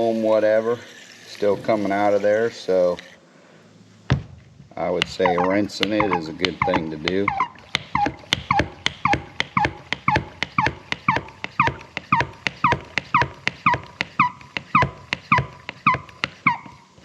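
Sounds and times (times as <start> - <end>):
spray bottle pump clicking: 5.0 - 8.1.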